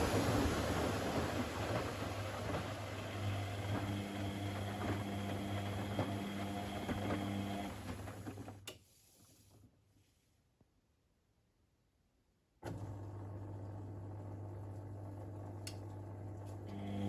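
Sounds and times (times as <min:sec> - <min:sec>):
washing machine running: 0:00.0 - 0:08.7, 0:12.6 - 0:17.0.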